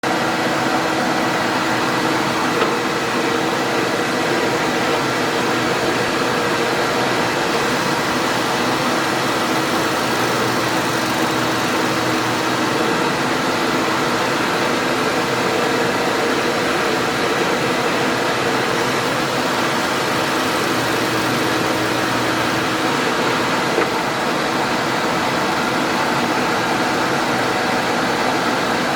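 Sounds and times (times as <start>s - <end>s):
power tool motor whirring: 19.0s - 23.9s.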